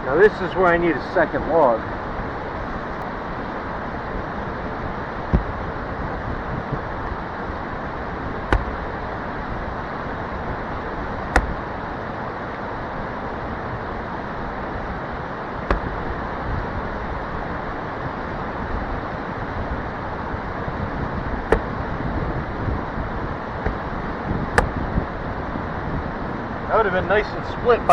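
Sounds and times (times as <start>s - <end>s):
axe splitting log: 5.2s - 5.8s, 8.5s - 8.9s, 11.3s - 11.7s, 15.6s - 16.2s, 21.5s - 21.9s, 23.6s - 24.0s, 24.6s - 24.9s.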